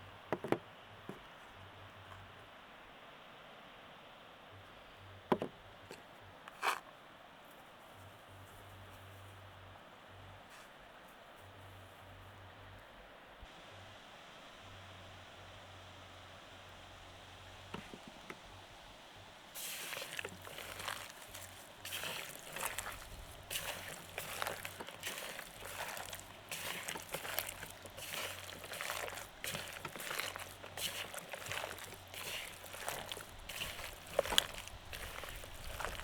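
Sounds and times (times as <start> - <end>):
wet squelching of raw chicken: 19.6 - 36.0.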